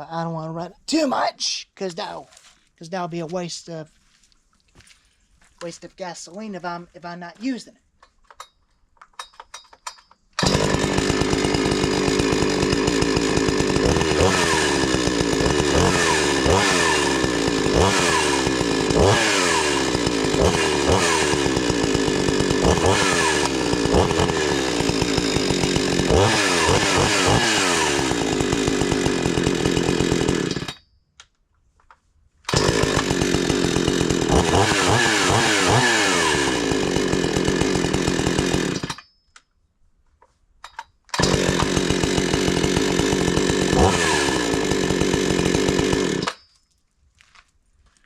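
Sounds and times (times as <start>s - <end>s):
chainsaw engine revving: 10.4s - 30.7s, 32.5s - 39.0s, 41.2s - 46.4s.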